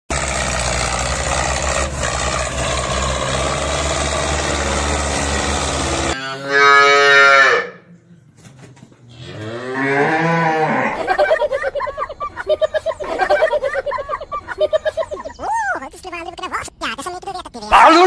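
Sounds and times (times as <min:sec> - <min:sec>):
engine running: 0:00.1 - 0:06.2
cow mooing: 0:06.1 - 0:07.9, 0:09.1 - 0:11.0.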